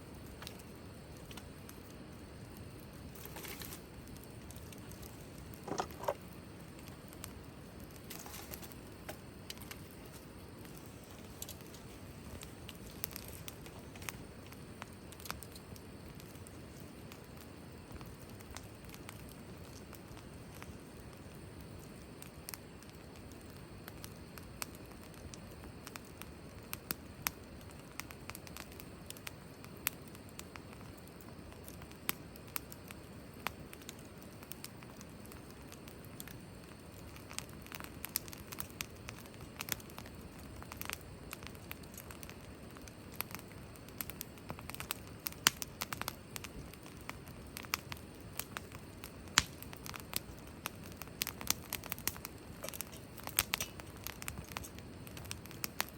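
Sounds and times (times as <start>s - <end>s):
wood fire crackling and popping: 0.0s - 55.9s.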